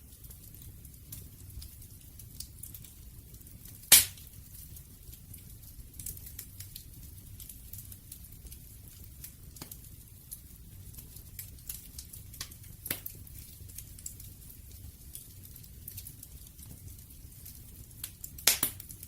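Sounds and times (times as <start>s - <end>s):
low rumble of flames: 0.0s - 19.0s
wood fire crackling: 0.0s - 19.0s.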